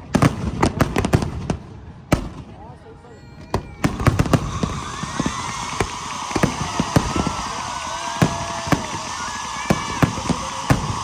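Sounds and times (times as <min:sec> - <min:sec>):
fireworks banging: 0:00.0 - 0:02.7, 0:03.4 - 0:11.0
crowd hubbub: 0:02.2 - 0:11.0.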